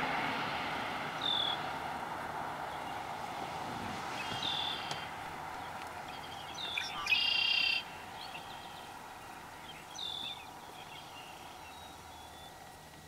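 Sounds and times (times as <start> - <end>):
songbird trilling: 4.2 - 12.6.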